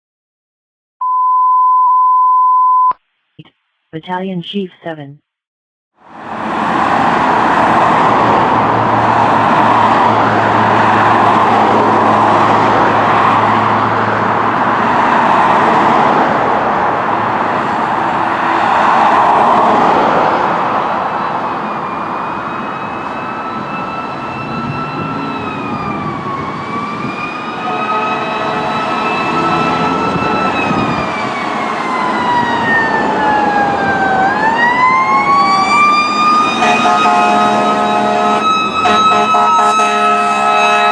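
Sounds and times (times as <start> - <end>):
loud road noise: 6.0 - 40.9
fire engine siren wailing: 20.3 - 40.9.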